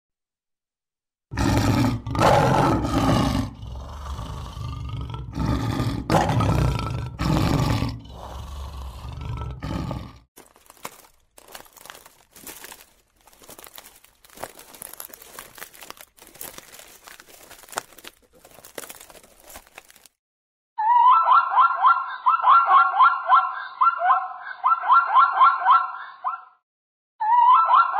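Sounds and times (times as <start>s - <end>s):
lion roaring and grunting: 1.3s - 10.3s
crunching and crackling: 10.4s - 20.2s.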